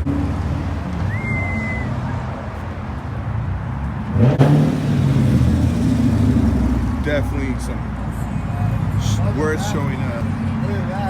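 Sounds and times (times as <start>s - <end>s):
car engine revving: 3.9s - 8.1s.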